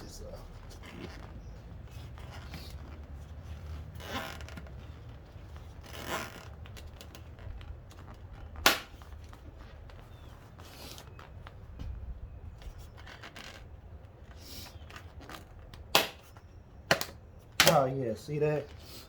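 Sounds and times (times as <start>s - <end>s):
plastic snapping click: 16.9s - 17.8s.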